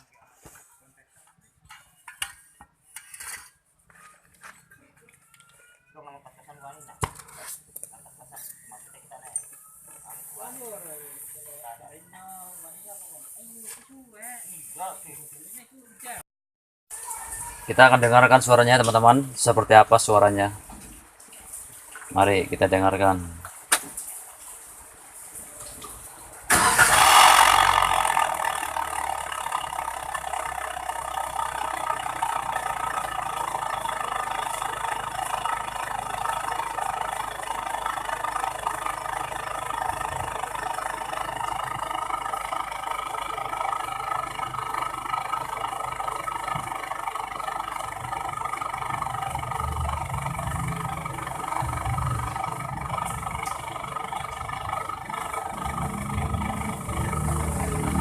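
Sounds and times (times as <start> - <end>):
car engine starting and idling: 25.6 - 58.0.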